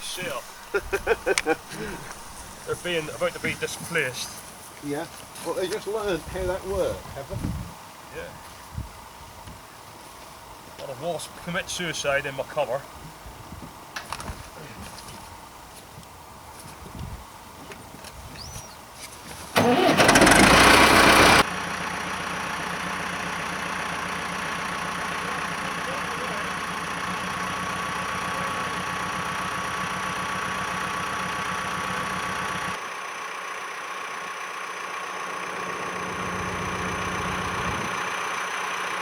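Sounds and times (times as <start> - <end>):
tractor engine running: 0.0 - 7.0, 17.3 - 39.0.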